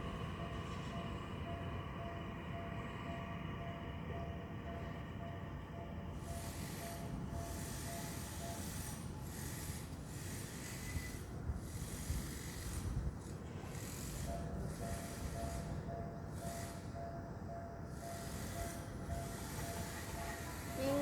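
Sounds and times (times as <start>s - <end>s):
level crossing warning bell: 0.0s - 9.8s, 14.1s - 21.0s.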